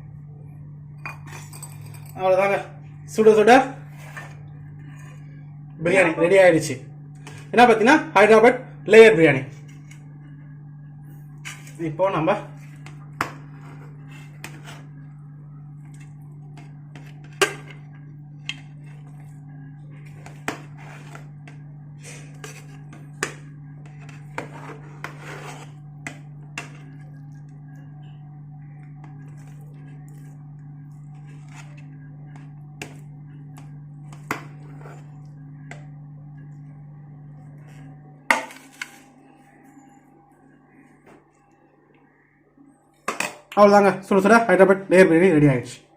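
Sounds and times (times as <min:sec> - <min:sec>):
steady low hum: 0:00.0 - 0:45.9
utensils clinking against metal pot: 0:01.0 - 0:02.2.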